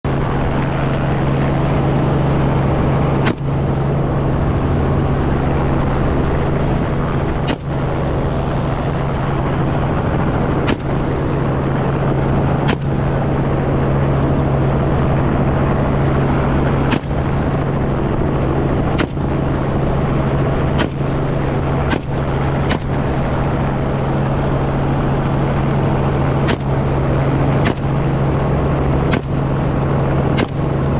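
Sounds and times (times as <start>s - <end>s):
helicopter humming: 0.0s - 30.9s.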